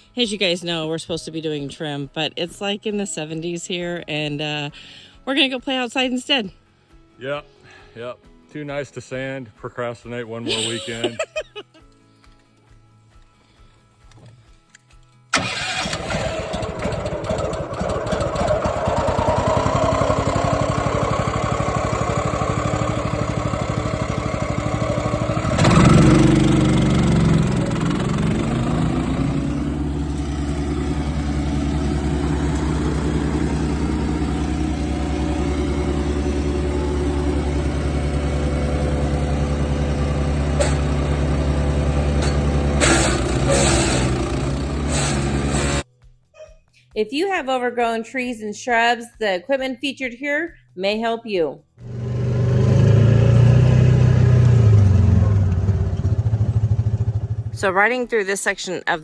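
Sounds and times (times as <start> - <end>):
small gasoline engines running: 15.3 - 45.8, 51.8 - 57.6.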